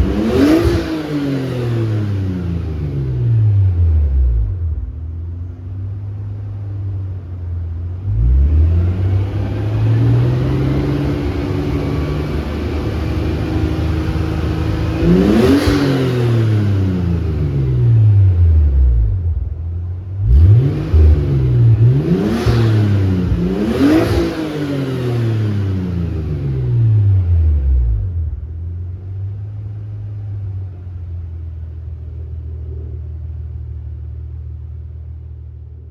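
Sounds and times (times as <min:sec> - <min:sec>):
car engine revving: 0:00.0 - 0:05.1, 0:08.0 - 0:30.2
low exhaust rumble at idle: 0:00.0 - 0:24.7, 0:25.5 - 0:35.9.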